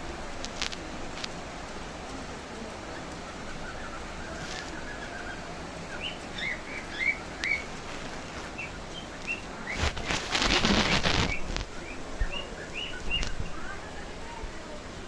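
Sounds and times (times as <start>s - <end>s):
rain hiss: 0.0s - 15.0s
small bird chirping: 2.8s - 13.8s.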